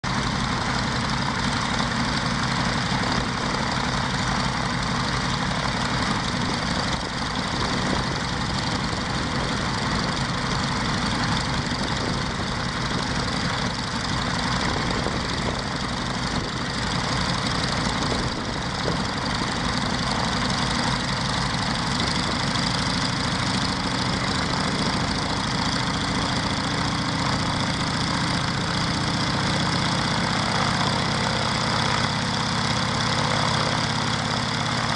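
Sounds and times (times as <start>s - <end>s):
radial piston engine running: 0.1s - 34.9s.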